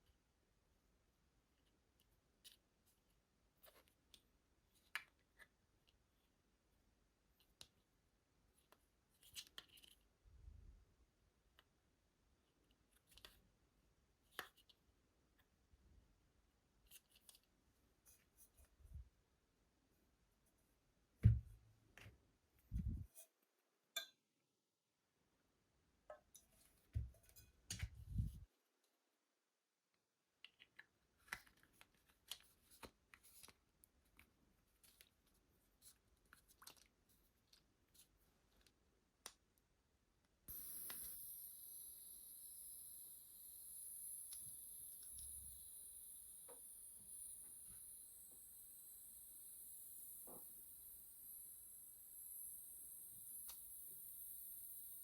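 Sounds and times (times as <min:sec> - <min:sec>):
clicks and taps of small objects: 0:30.4 - 0:35.1
high-pitched hiss: 0:40.5 - 0:55.0.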